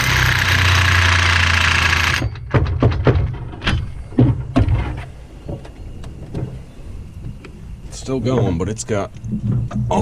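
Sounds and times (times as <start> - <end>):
sharp metal knocks and clunks: 2.0 - 5.7.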